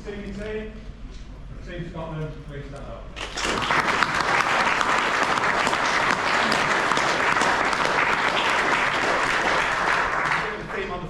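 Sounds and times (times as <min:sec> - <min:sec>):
large crowd applauding: 0:03.2 - 0:11.0.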